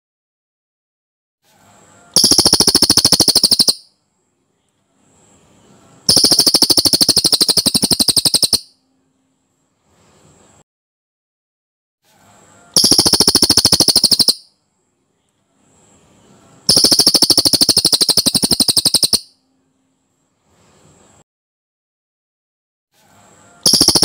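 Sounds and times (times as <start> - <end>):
bird rattling trills: 2.2 - 3.8, 6.1 - 8.7, 12.8 - 14.5, 16.7 - 19.3, 23.7 - 24.0.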